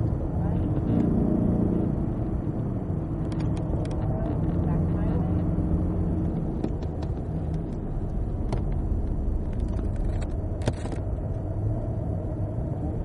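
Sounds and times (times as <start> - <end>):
car engine from inside cabin: 0.0 - 13.0.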